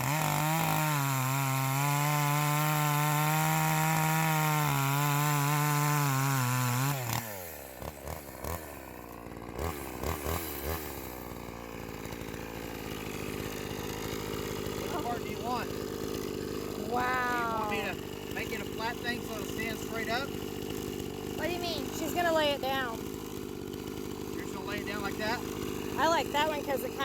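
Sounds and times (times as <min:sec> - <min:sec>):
chainsaw running: 0:00.0 - 0:27.0.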